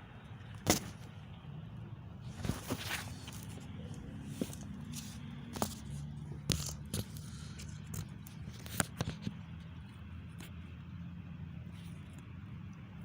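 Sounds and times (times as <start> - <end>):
sharp clicks and light knocks: 2.4 - 10.6.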